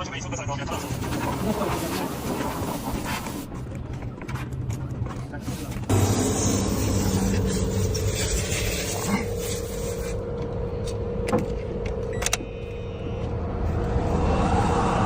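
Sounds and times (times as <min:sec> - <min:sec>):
car engine running: 0:05.9 - 0:14.2.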